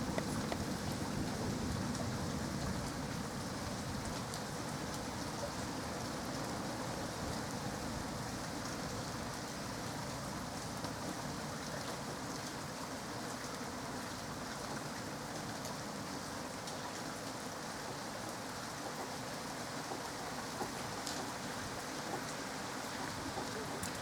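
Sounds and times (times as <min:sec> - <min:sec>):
raindrop ticks: 0:00.0 - 0:00.9
steady rain hiss: 0:00.0 - 0:24.0.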